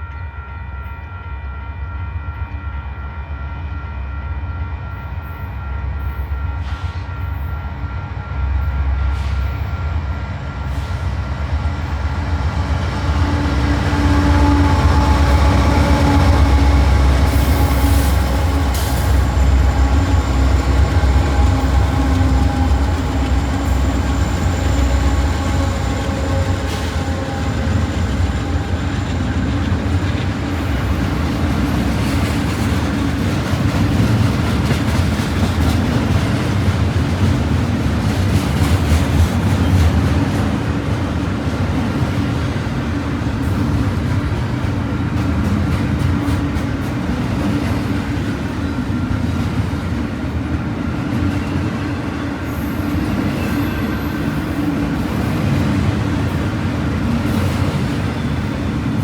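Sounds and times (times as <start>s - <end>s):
diesel locomotive rumble: 4.6s - 59.0s
train wheels clattering on rails: 9.1s - 59.0s.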